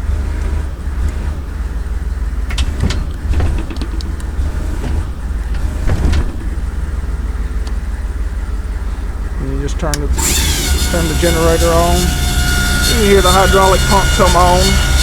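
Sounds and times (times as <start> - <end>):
diesel engine idling: 0.0 - 15.0
hydraulic controls clicking: 0.3 - 15.0.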